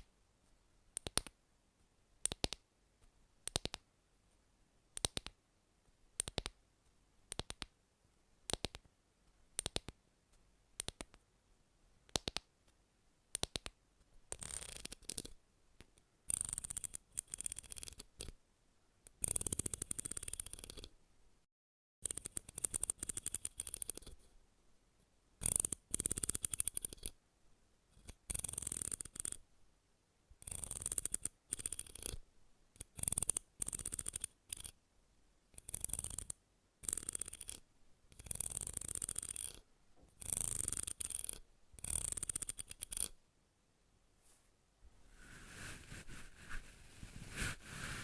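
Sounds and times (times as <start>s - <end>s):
crisp fast scratching: 45.1s - 48.0s.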